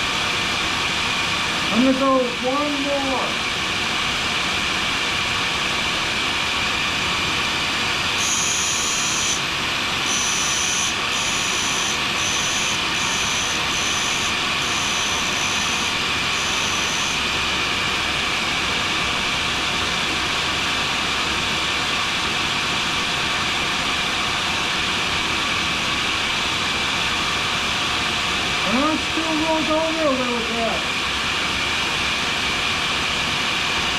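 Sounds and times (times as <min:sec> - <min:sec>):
ventilation noise: 0:00.0 - 0:33.9
grinder running: 0:08.1 - 0:17.5
blade squealing on grinding wheel: 0:08.2 - 0:17.3.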